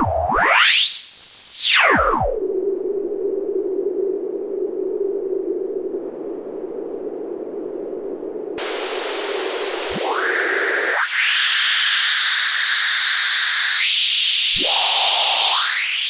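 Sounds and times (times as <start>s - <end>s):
filtered white noise hiss: 8.6s - 15.5s
resonant filter sweeps: 8.6s - 16.0s.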